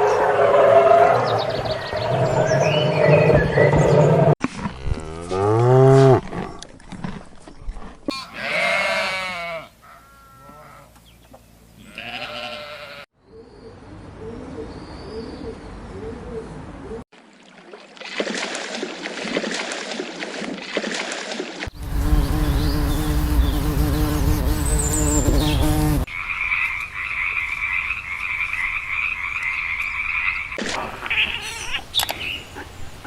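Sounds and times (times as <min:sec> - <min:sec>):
wavering bleating: 0:08.1 - 0:10.9, 0:11.8 - 0:13.1.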